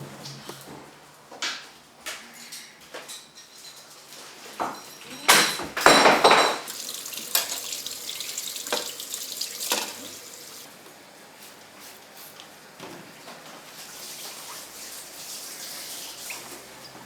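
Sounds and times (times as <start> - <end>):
dishes clinking: 3.0 - 10.4
tap water running into sink: 5.8 - 10.7.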